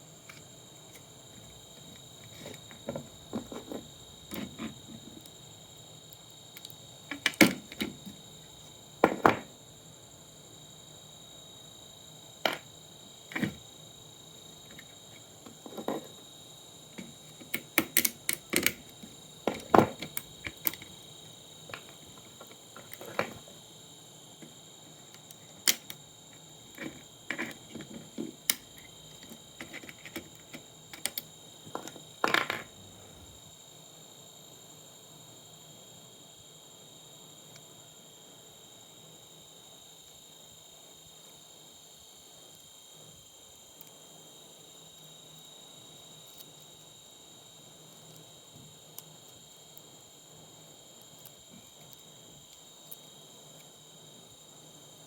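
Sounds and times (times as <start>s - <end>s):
clicks and knocks of parts handled: 0.3s - 5.3s, 6.6s - 8.2s, 12.4s - 12.6s, 14.7s - 16.2s, 17.0s - 21.0s, 21.7s - 23.5s, 25.1s - 32.8s.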